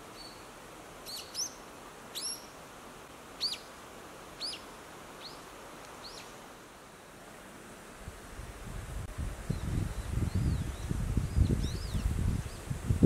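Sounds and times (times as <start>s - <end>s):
steady outdoor hiss: 0.0s - 13.0s
small bird high chirps: 1.1s - 2.5s, 3.4s - 3.7s, 4.4s - 4.6s, 6.0s - 6.3s.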